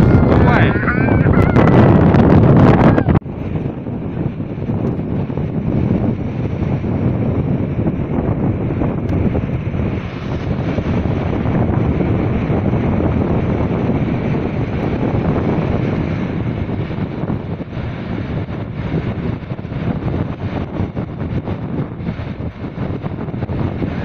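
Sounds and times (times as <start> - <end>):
strong wind buffeting microphone: 0.0 - 24.0.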